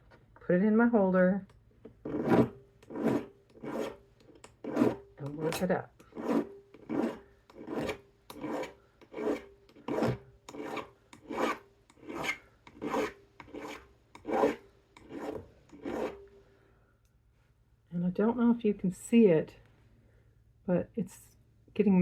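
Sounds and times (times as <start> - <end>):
file rasping on metal: 2.0 - 16.3.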